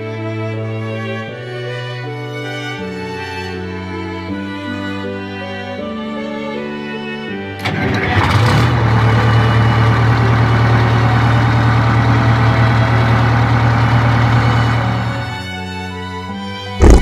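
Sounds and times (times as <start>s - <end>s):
car engine starting and idling: 7.6s - 15.5s.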